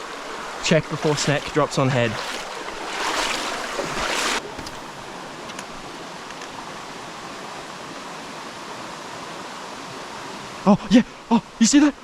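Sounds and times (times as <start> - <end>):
creek water running: 0.0 - 12.0.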